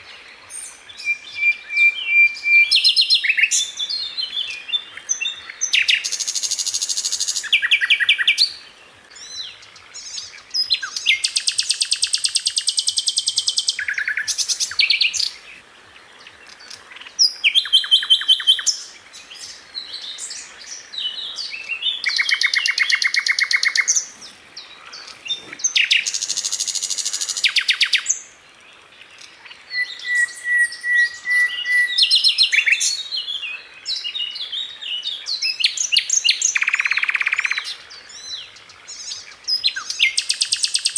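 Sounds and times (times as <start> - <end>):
bird chirps: 16.4 - 28.2, 29.0 - 40.9
bird singing rapid trills: 16.6 - 28.3
bird whistle: 29.7 - 32.8.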